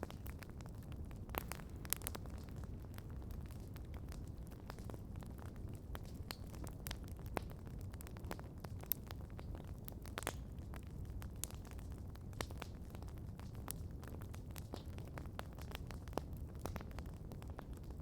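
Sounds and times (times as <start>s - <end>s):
campfire crackling and popping: 0.0s - 18.0s
flames rumbling: 0.0s - 18.0s.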